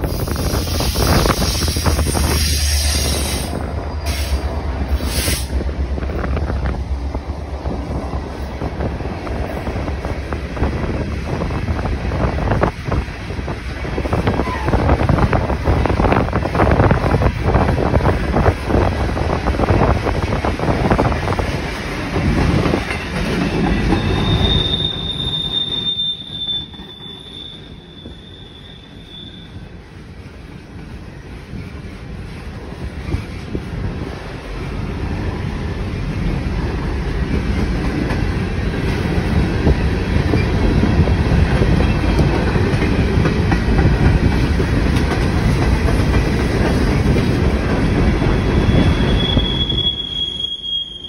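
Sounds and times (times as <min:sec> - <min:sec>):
steel wheels clattering over rail joints: 0:03.1 - 0:27.8, 0:30.7 - 0:49.8.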